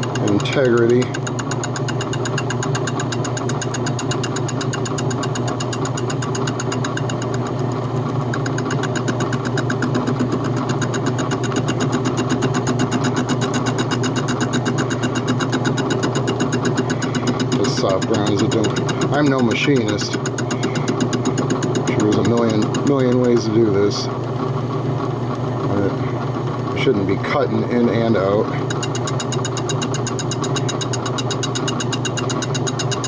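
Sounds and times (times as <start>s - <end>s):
metal lathe humming: 0.0s - 33.0s.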